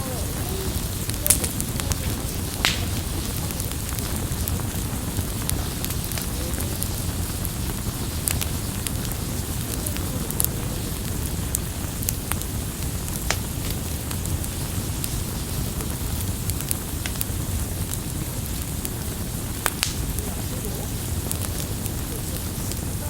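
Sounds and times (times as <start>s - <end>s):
campfire flames rushing: 0.0s - 23.0s
fire crackles and pops: 0.0s - 23.0s.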